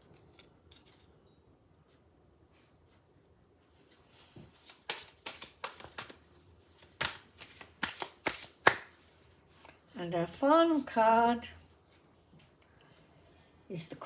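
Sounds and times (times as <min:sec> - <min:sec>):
cards being shuffled: 0:04.2 - 0:09.0
card clicks and slaps: 0:04.6 - 0:06.2, 0:06.8 - 0:09.0.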